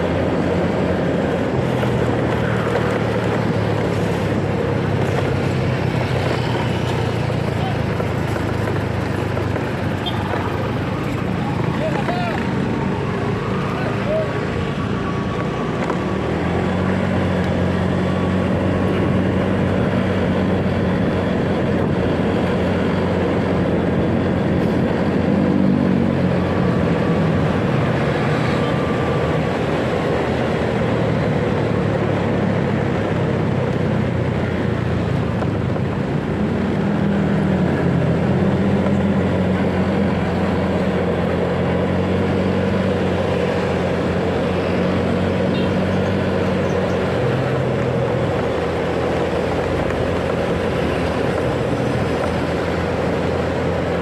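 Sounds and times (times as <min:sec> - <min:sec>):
road and wind noise: 0:00.0 - 0:54.0
motorcycle engine running: 0:01.6 - 0:14.4.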